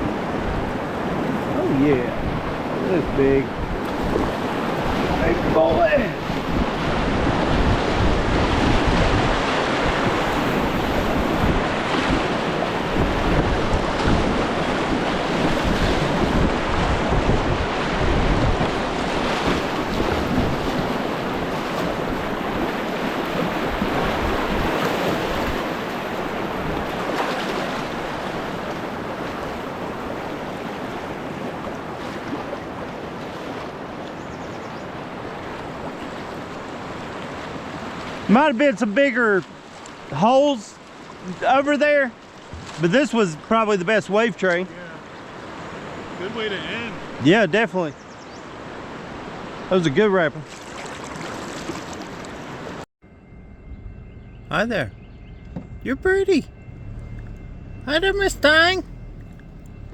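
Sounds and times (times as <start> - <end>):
wind buffeting microphone: 2.1 - 27.2
whitewater rushing and splashing: 2.7 - 16.9.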